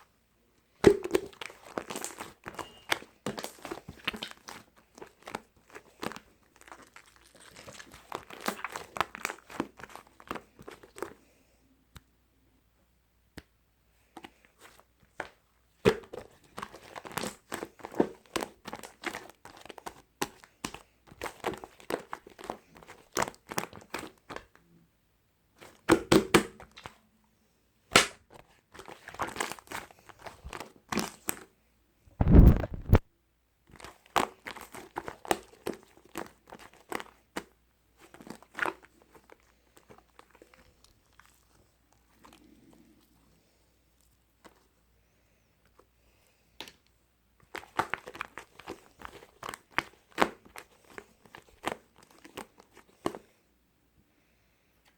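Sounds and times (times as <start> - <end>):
crinkling and crackling: 1.3 - 11.1, 32.2 - 33.0
loud thud: 32.2 - 33.0.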